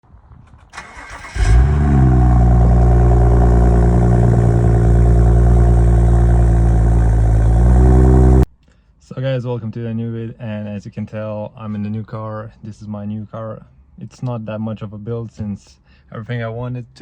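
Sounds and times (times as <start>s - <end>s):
car engine starting and idling: 0.7s - 8.5s.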